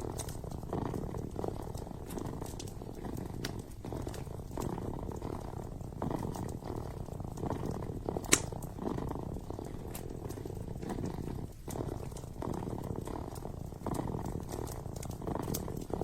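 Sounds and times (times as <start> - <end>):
kitten purring: 0.0 - 16.0
wood fire crackling: 0.0 - 16.0
sharp pop from fire: 8.2 - 8.6.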